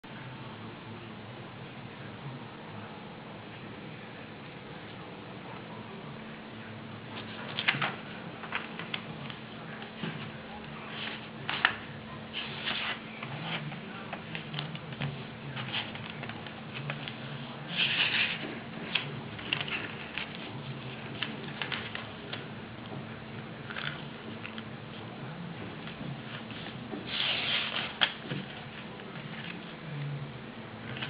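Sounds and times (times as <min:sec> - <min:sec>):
steady low hum: 0:00.1 - 0:31.0
paper rustling and creasing: 0:07.2 - 0:22.5, 0:25.8 - 0:29.8.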